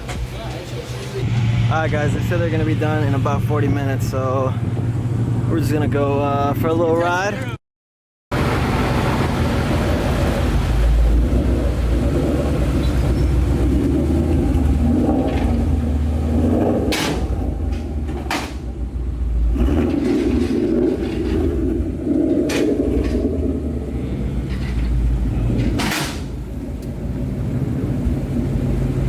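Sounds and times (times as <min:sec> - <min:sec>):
car engine rumble: 0:00.0 - 0:07.6, 0:08.3 - 0:29.0.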